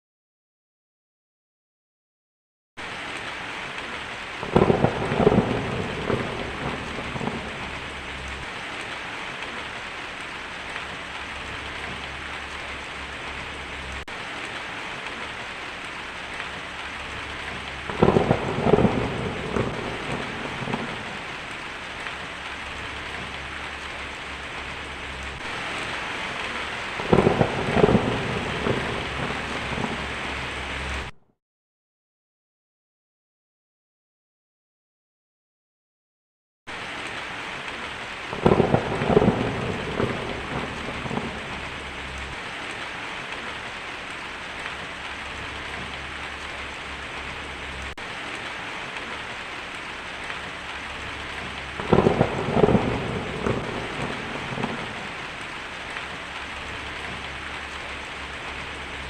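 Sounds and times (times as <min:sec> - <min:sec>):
heavy rain on a tin roof: 0:02.8 - 0:31.2, 0:36.7 - 0:59.0
rolling thunder: 0:04.4 - 0:08.6, 0:16.5 - 0:22.0, 0:22.6 - 0:31.1, 0:38.3 - 0:43.4, 0:50.4 - 0:55.4.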